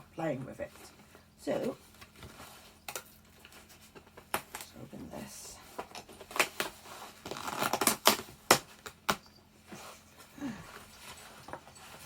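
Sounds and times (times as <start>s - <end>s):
packaging rustling and tearing: 5.7s - 9.2s.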